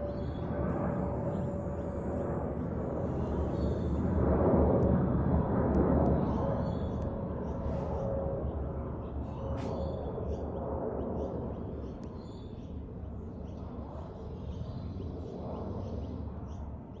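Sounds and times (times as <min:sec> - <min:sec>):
jet engines roaring overhead: 0:00.0 - 0:17.0
small birds chirping: 0:06.1 - 0:17.0.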